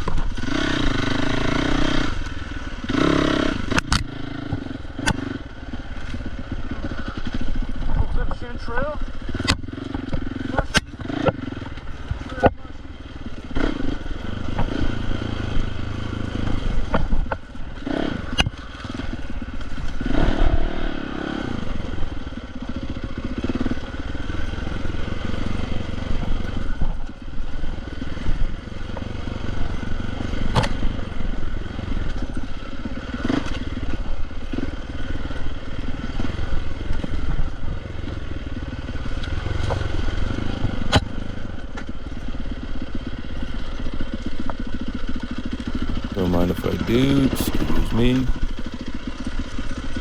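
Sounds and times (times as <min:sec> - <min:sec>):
dirt bike engine running: 0:00.0 - 0:07.9, 0:45.4 - 0:49.0.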